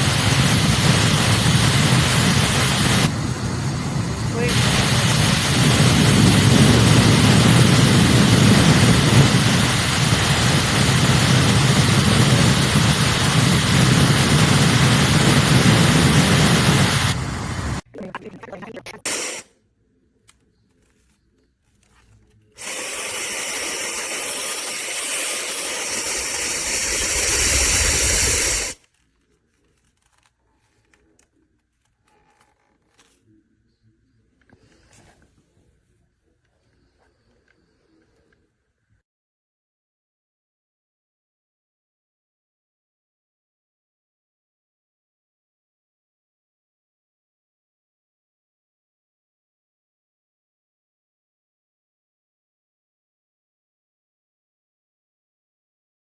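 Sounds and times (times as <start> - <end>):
hair dryer blowing: 22.6 - 28.8.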